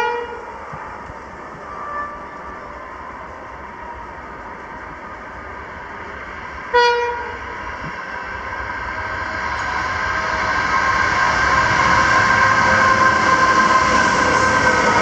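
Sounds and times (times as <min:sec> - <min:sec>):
locomotive horn toot: 0:00.0 - 0:00.4, 0:01.8 - 0:02.3, 0:06.7 - 0:07.4
freight train engines running: 0:00.0 - 0:15.0.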